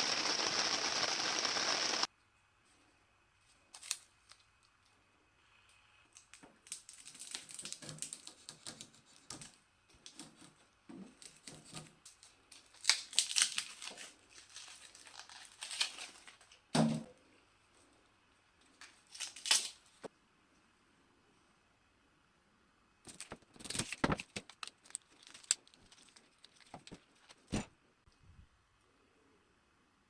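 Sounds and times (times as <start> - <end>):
crinkling rustles: 6.1 - 16.7, 23.0 - 27.5.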